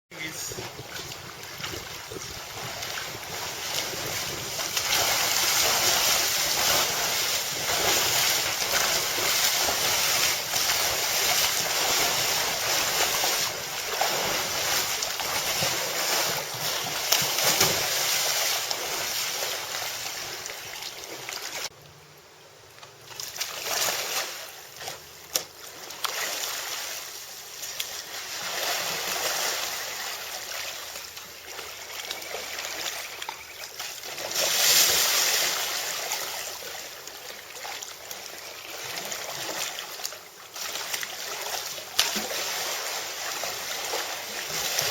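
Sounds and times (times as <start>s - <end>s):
rushing splashing water: 0.2s - 21.7s, 23.1s - 44.9s
wind buffeting microphone: 0.4s - 8.2s.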